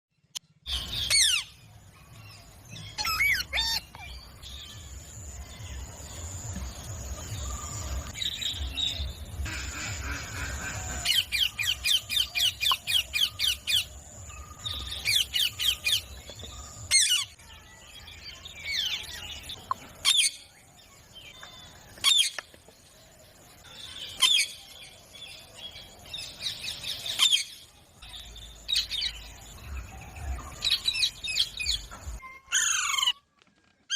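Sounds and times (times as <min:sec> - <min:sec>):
parrot screeching: 0:03.0 - 0:04.0, 0:32.3 - 0:33.2.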